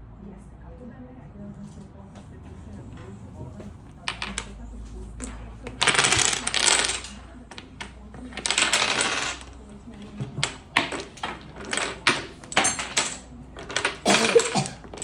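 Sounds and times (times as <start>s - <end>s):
small hard objects clattering: 4.0s - 15.0s.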